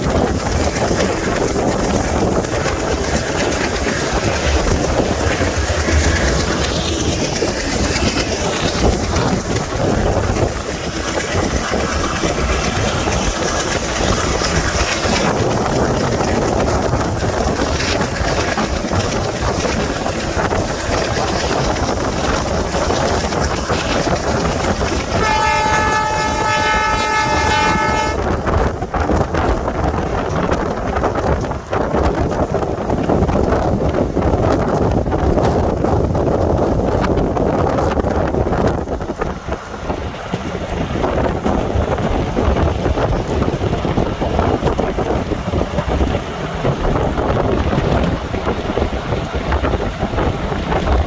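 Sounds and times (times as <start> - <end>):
rush of air: 0.0 - 25.2
train wheels rumbling on rail: 0.0 - 51.0
locomotive horn blast: 25.1 - 28.4.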